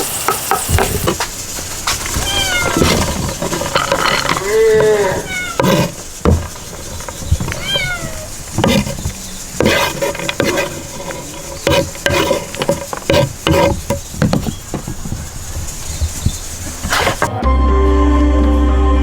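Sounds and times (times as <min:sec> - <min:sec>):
food sizzling in oil: 0:00.0 - 0:03.1
metal spoon scraping pot: 0:01.9 - 0:17.3.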